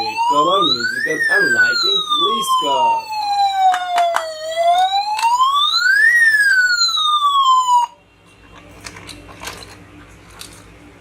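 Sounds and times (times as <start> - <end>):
toy police car siren wailing: 0.0 - 8.0.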